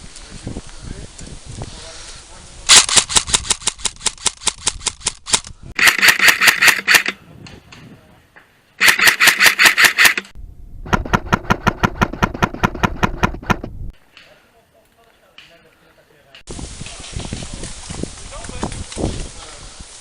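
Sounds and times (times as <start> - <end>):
airsoft guns firing bursts: 5.8 - 7.1, 8.8 - 10.3.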